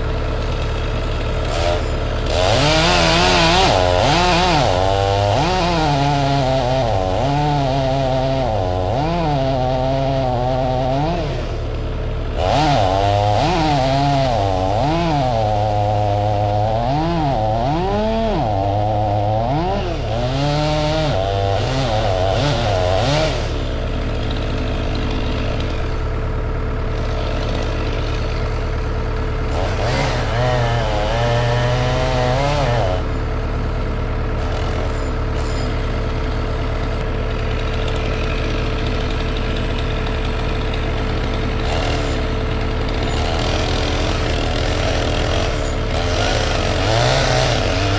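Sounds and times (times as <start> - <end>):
chainsaw revving and cutting: 0.0 - 47.9.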